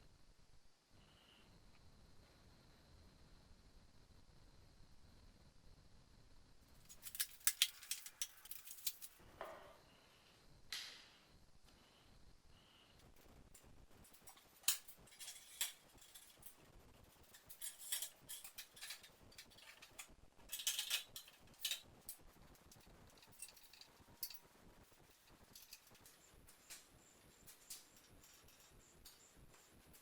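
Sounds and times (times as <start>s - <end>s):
small hard objects clinking: 6.8s - 9.2s, 14.1s - 16.6s, 17.2s - 26.8s.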